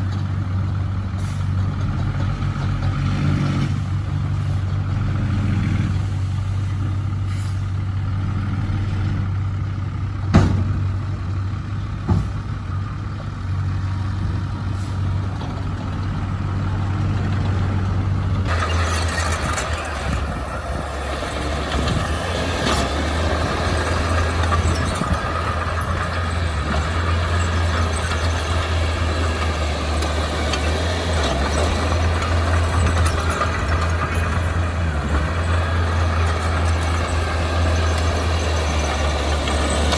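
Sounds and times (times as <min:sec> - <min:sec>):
diesel engine running: 0:00.0 - 0:39.9
sharp knocks: 0:10.4 - 0:10.8, 0:12.1 - 0:12.5.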